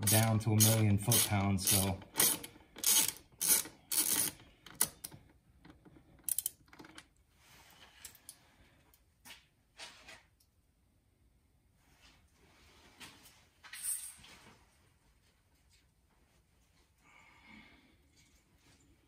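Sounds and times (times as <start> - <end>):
screwdriver clicking and rattling: 0.0 - 7.1.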